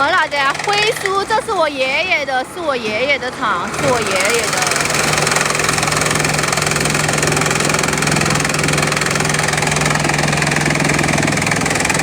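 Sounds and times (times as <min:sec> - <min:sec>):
crushing machine humming and rattling: 0:00.0 - 0:12.0.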